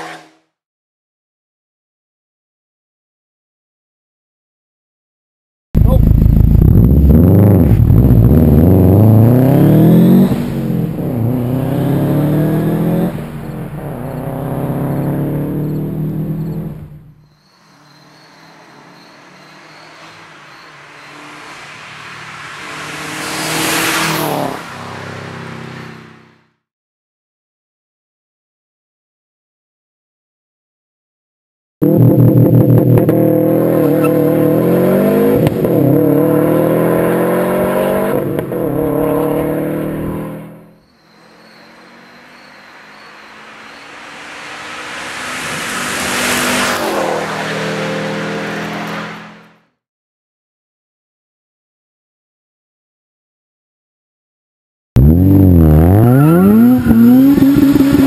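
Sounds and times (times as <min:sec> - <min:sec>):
car passing at speed: 0:17.6 - 0:26.4, 0:33.4 - 0:49.6, 0:55.0 - 0:58.0.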